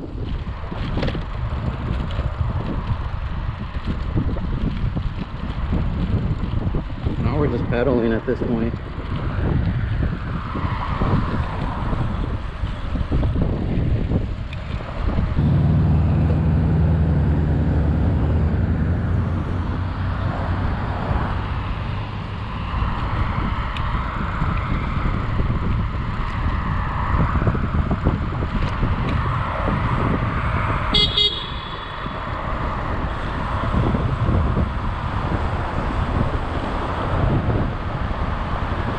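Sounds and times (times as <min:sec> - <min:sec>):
road and traffic noise: 0:00.0 - 0:38.9
wind buffeting microphone: 0:00.0 - 0:38.9
horn toot: 0:30.9 - 0:32.3.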